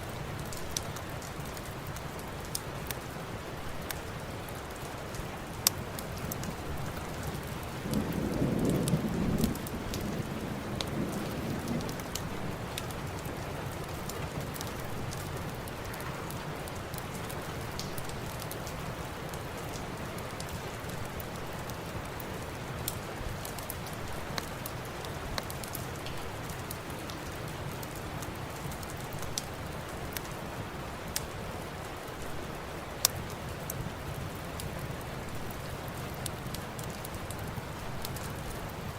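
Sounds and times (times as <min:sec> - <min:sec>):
steady rain: 0:00.0 - 0:38.9
wood fire crackling: 0:00.0 - 0:38.9
thunder rumble: 0:06.5 - 0:16.8.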